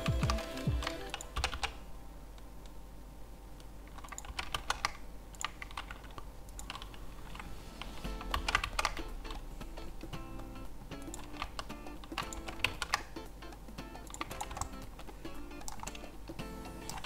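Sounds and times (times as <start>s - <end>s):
keyboard keys clicking: 0.0s - 1.8s, 3.9s - 7.5s, 8.2s - 9.4s, 10.9s - 17.0s.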